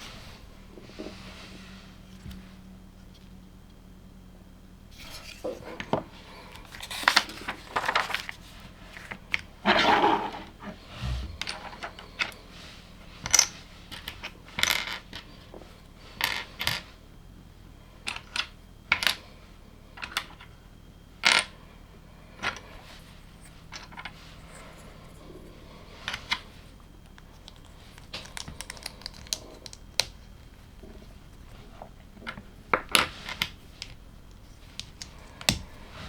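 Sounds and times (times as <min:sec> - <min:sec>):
plastic pieces clicking and clattering: 0:27.1 - 0:30.2.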